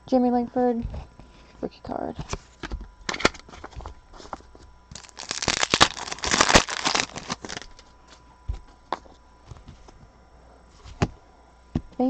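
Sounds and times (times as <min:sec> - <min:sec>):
foil wrapper tearing and crinkling: 0:04.9 - 0:07.9.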